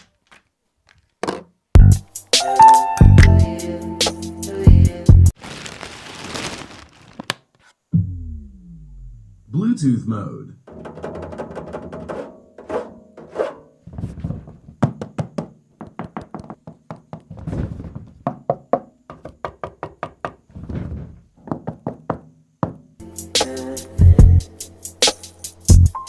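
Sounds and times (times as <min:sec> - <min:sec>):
irregular knocks and clicks: 0:14.7 - 0:20.8, 0:21.4 - 0:22.9.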